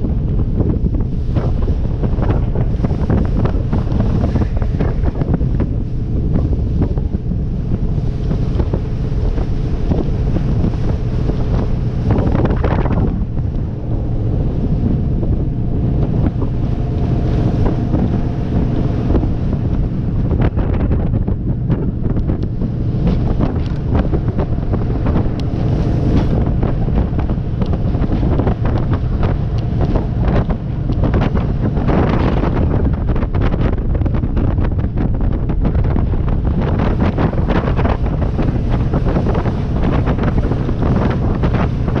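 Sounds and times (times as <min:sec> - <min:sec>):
boat engine: 0:00.0 - 0:42.0
hull running through water: 0:00.0 - 0:42.0
wind buffeting microphone: 0:00.0 - 0:42.0
knocks and splashes: 0:00.7 - 0:33.6.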